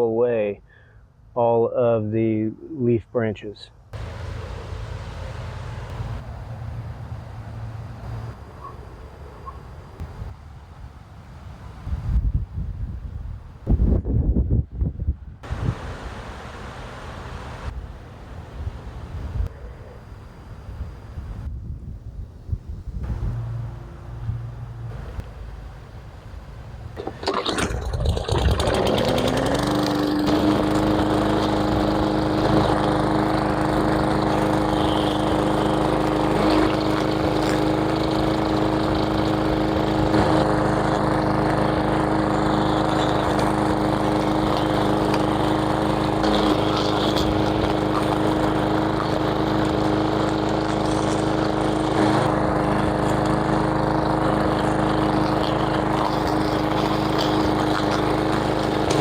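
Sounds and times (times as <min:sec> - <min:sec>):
power tool motor running: 0:27.0 - 0:59.0.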